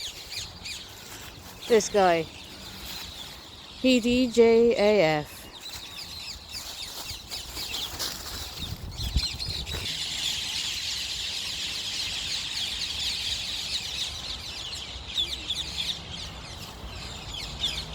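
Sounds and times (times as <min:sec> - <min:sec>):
flock of parakeets screeching: 0:07.6 - 0:17.9.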